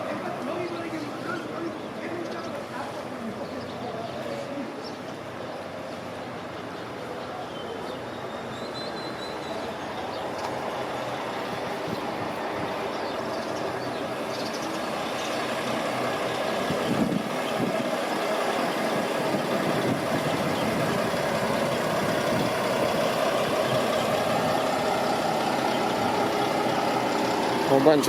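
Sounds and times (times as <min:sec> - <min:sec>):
street traffic: 0:00.0 - 0:28.0
heavy vehicle engine running: 0:09.1 - 0:28.0.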